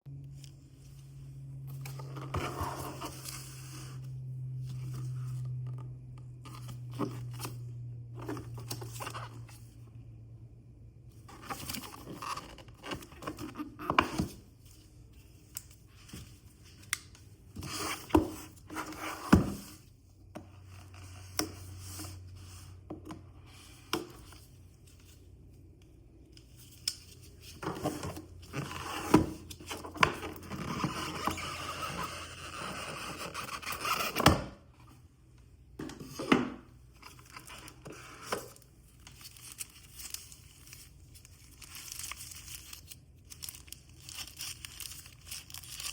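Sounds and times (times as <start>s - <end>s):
packaging tearing and crinkling: 39.1s - 45.9s.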